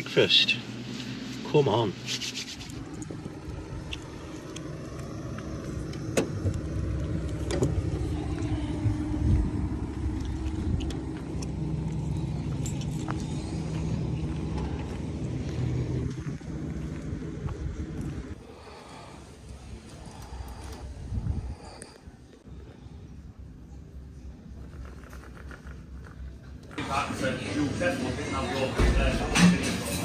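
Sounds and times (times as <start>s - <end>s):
car engine humming: 0.0s - 22.5s
footsteps on tarmac: 2.7s - 18.4s
van door shutting: 5.8s - 6.8s, 7.4s - 8.0s.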